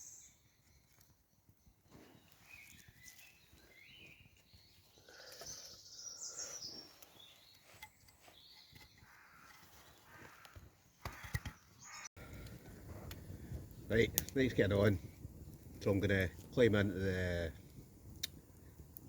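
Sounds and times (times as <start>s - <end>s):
woodland birds calling: 0.0s - 12.4s.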